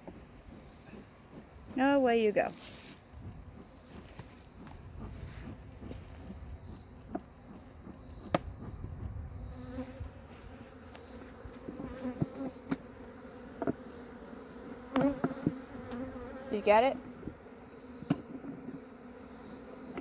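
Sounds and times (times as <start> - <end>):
bee buzzing loudly close by: 0.0 - 20.0
bees buzzing drone: 6.0 - 20.0.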